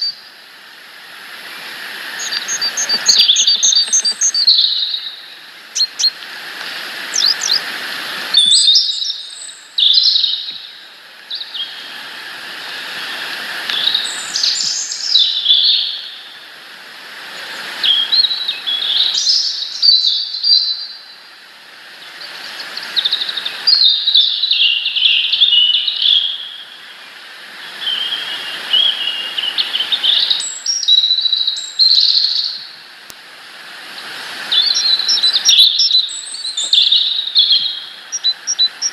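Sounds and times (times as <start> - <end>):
songbirds chirping: 1.4 - 12.0, 33.9 - 38.9.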